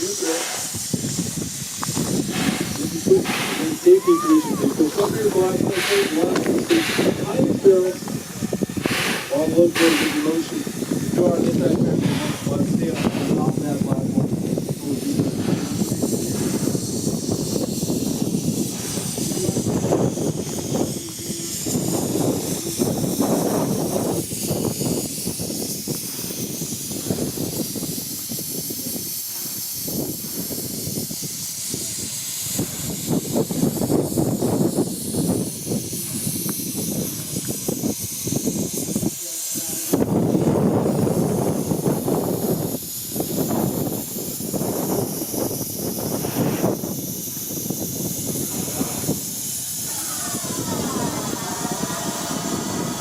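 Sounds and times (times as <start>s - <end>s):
steam locomotive hissing: 0.0s - 53.0s
wind buffeting microphone: 0.0s - 53.0s.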